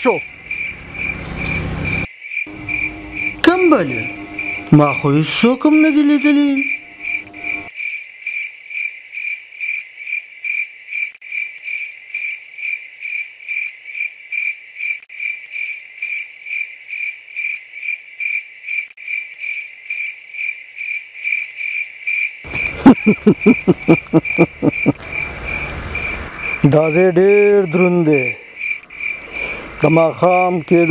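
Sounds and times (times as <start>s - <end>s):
cricket chirping: 0.0s - 8.9s, 9.7s - 30.9s
loud low pulsing sound: 0.3s - 7.7s.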